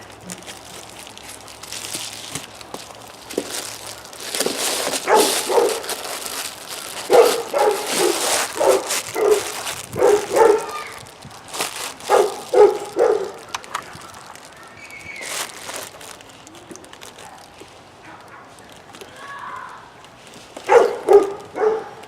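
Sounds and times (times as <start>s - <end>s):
dog barking: 5.0s - 5.9s, 7.1s - 10.8s, 12.1s - 13.4s, 20.7s - 22.0s.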